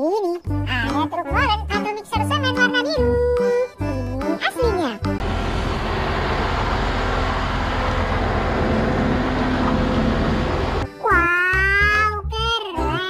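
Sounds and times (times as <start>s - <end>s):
children's song with singing: 0.0s - 5.2s, 10.9s - 13.0s
diesel truck engine running: 5.0s - 10.9s
road noise: 5.2s - 10.9s.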